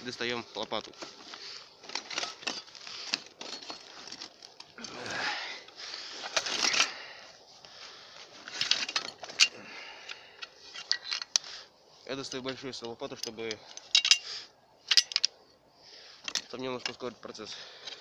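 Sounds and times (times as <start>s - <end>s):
scraping rustle: 0.0s - 9.6s
gear rustling: 0.0s - 15.4s.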